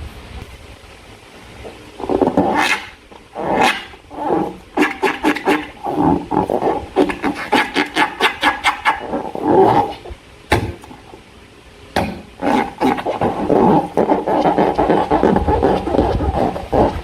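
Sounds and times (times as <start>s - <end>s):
crackling air pops: 1.6s - 11.2s, 11.9s - 17.0s
slime squelching: 12.0s - 17.0s.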